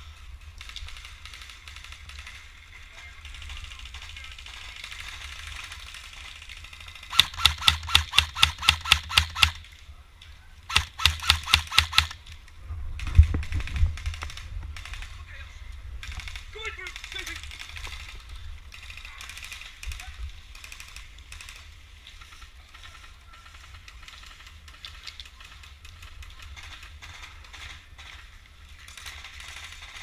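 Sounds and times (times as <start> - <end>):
airsoft gun rapid shots: 6.8 - 9.6, 10.7 - 12.2.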